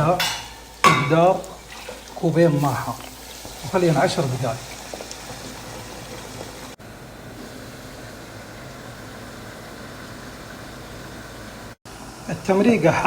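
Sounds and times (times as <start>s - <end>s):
gas burner: 0.0s - 13.0s
broth bubbling in a pot: 0.6s - 13.0s.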